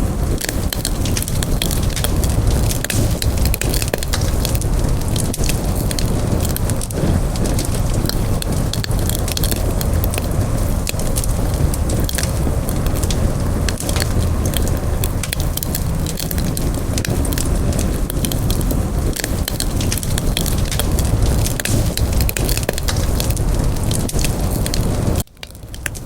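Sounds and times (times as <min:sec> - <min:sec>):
burning wood popping and crackling: 0:00.0 - 0:26.0
low rumble of flames: 0:00.0 - 0:26.0.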